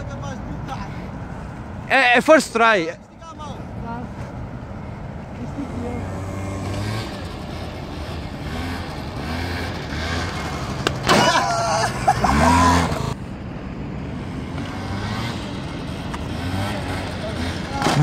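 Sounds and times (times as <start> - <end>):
scooter engine revving: 5.6 - 13.2, 14.2 - 18.0.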